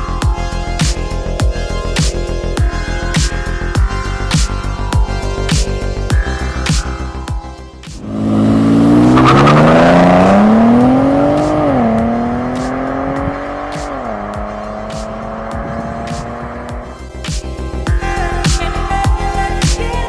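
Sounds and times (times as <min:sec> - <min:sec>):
car engine accelerating: 0:04.9 - 0:17.9.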